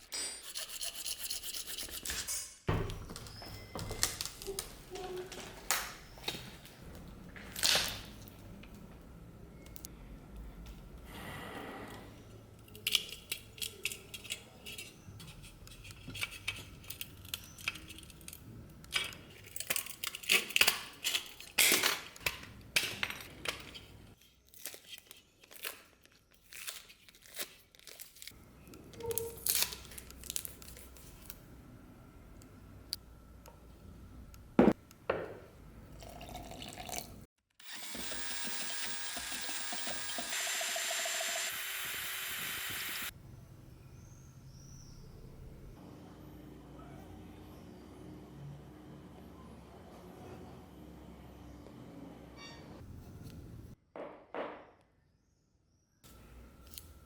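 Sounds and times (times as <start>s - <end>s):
steady hiss: 37.6s - 43.1s.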